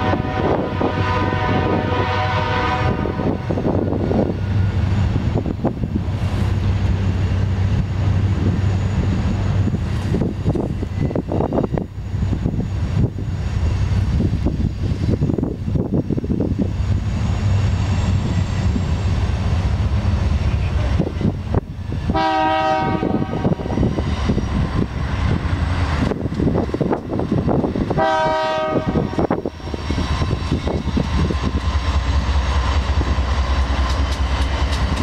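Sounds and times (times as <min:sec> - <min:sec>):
locomotive air horn chord: 0:00.0 - 0:03.4, 0:22.1 - 0:23.6, 0:28.0 - 0:29.1
diesel train engine rumbling: 0:00.0 - 0:35.0.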